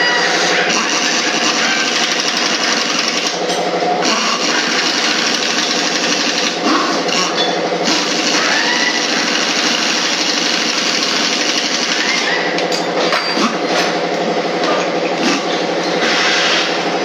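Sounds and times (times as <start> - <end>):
loud machinery noise: 0.0 - 17.0.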